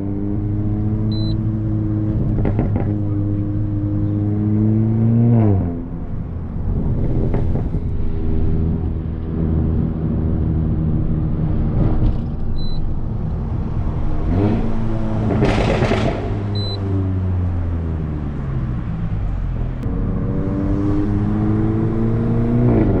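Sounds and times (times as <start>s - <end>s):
car engine droning in cabin: 0.0s - 23.0s
short high beeps: 1.1s - 1.4s, 16.5s - 16.8s.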